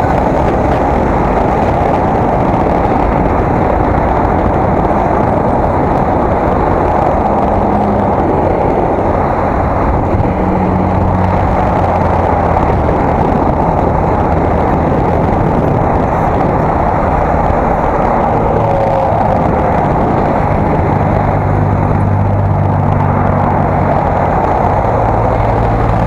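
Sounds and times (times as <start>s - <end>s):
low hum: 0.0s - 26.0s
road rumble: 0.0s - 26.0s
wind rush: 0.0s - 26.0s.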